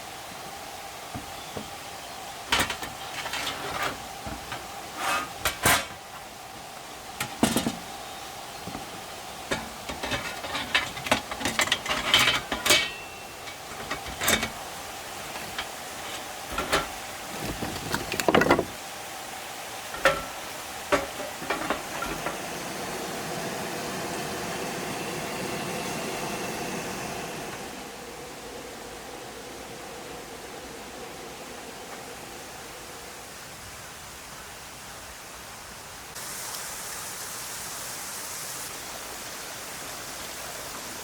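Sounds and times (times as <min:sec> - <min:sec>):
steady hiss: 0:00.0 - 0:41.0
cookware clinking and knocking: 0:09.5 - 0:14.6, 0:20.0 - 0:22.4.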